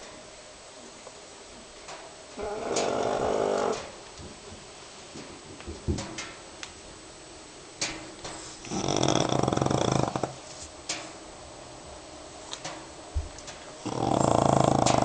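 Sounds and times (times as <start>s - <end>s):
dog snoring: 2.4s - 3.9s, 8.6s - 10.4s, 13.8s - 15.0s.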